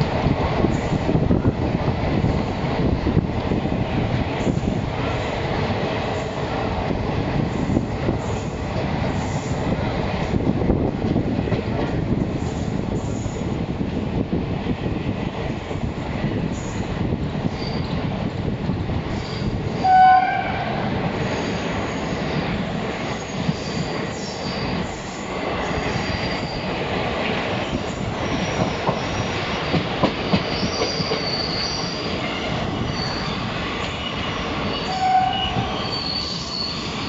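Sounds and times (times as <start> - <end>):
high-pitched wheel squeal: 34.7 - 37.0.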